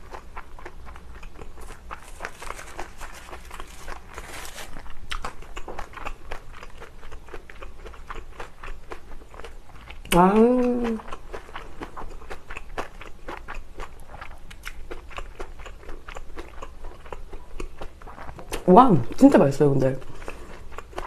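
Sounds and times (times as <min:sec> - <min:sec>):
wet chewing mouth clicks: 0:00.0 - 0:18.7
dry laver sheet crinkling: 0:01.6 - 0:05.0.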